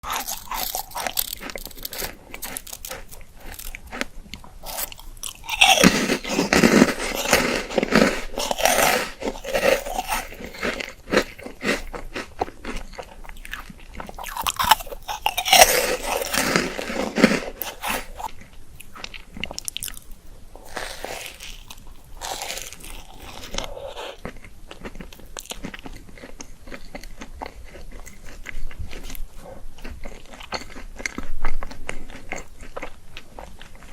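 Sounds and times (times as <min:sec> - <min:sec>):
chocolate shell crunching: 0:00.0 - 0:29.1
chewing: 0:00.0 - 0:33.9.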